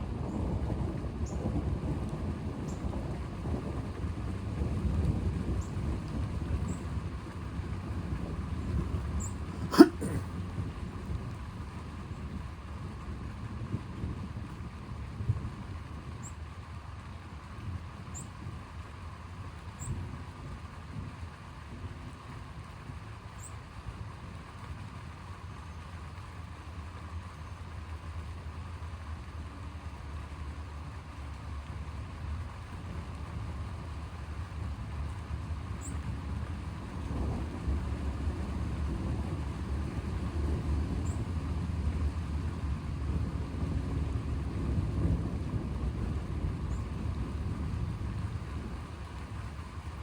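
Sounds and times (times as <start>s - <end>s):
distant rolling thunder: 0.1s - 9.6s, 36.0s - 50.0s.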